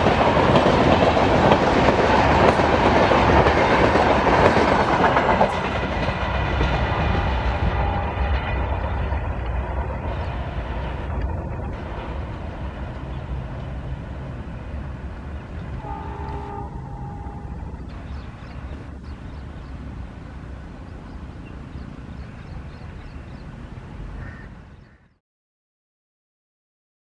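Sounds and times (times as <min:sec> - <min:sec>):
train wheels rumbling on rails: 0:00.0 - 0:25.1
train horn tone: 0:06.9 - 0:08.8, 0:15.7 - 0:17.9.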